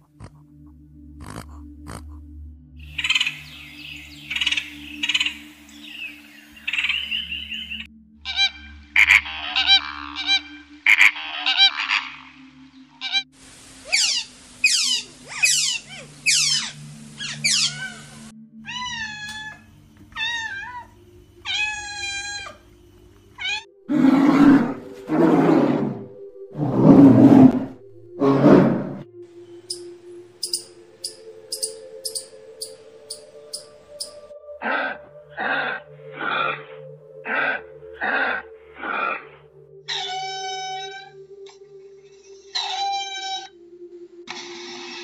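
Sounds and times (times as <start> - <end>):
bears growling: 0.0 - 2.2, 23.9 - 29.1, 34.6 - 41.1
woodpecker chattering calls: 3.0 - 3.5, 13.9 - 17.8, 29.7 - 34.2
sea otter squealing: 8.3 - 12.3, 13.9 - 19.6, 21.5 - 22.6, 39.9 - 41.2, 42.5 - 43.6.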